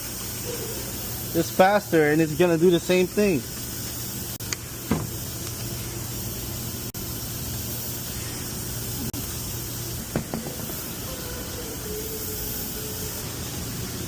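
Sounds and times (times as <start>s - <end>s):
broad hiss: 0.0s - 14.0s.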